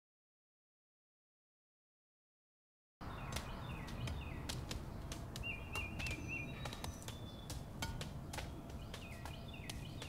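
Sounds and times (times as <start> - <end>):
small birds chirping: 3.0 - 10.0
whistled bird notes: 5.4 - 10.0.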